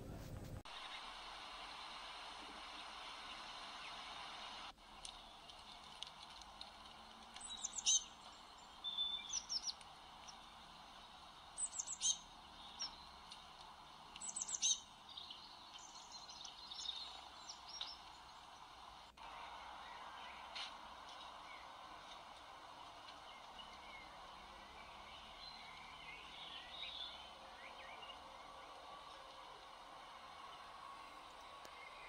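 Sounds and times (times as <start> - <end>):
steady background hiss: 0.0 - 5.4
birds chirping: 2.7 - 32.0.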